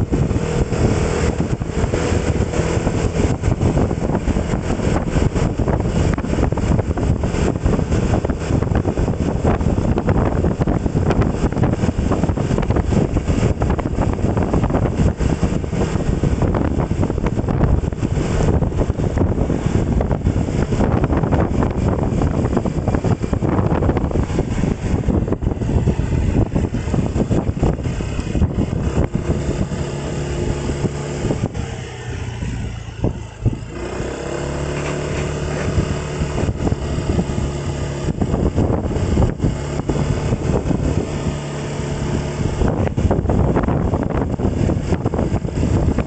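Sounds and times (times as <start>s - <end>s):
engine hum: 0.0s - 46.0s
wind rushing over microphone: 0.0s - 46.0s.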